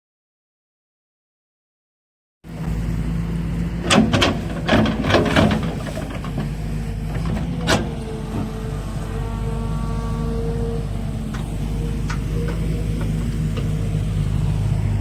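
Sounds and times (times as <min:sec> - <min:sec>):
excavator diesel engine running: 0:02.5 - 0:15.0.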